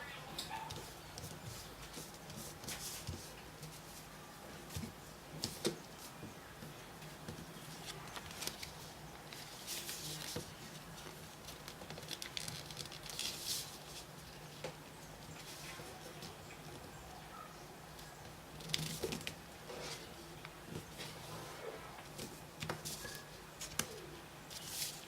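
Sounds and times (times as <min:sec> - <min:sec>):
paper rustling and crinkling: 0:00.7 - 0:14.4, 0:18.0 - 0:25.0
paper creasing clicks: 0:11.0 - 0:13.4.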